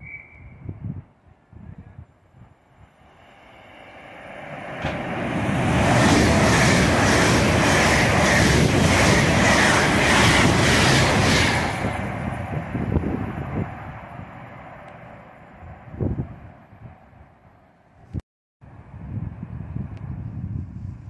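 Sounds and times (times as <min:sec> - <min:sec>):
train passing at speed: 0:02.3 - 0:17.6.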